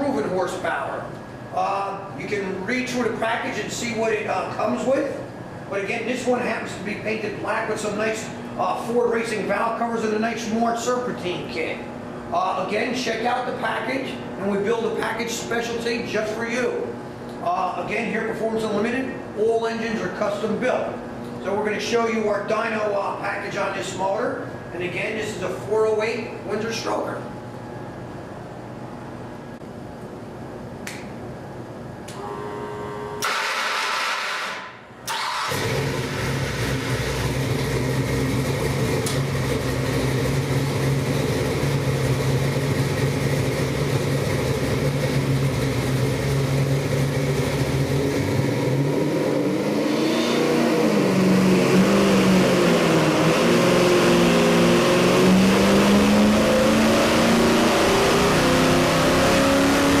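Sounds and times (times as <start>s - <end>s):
engine cranking and idling: 33.2s - 49.0s
engine revving: 33.2s - 60.0s.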